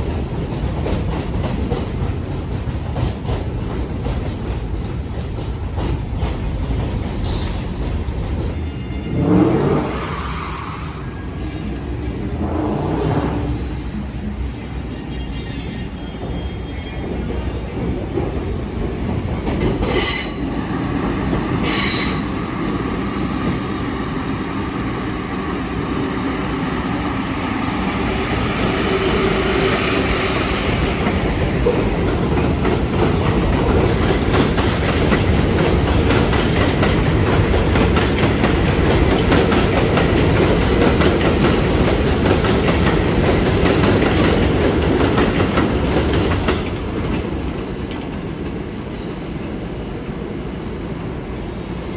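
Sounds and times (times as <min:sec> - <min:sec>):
train wheels clattering on track: 0:00.0 - 0:08.6, 0:16.0 - 0:49.5.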